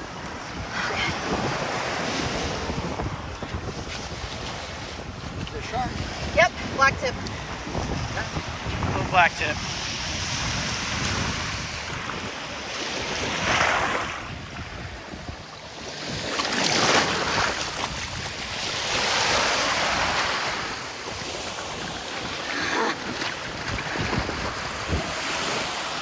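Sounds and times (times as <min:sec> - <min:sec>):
wind rumbling on microphone: 0:00.0 - 0:26.0
surf breaking on beach: 0:15.9 - 0:26.0.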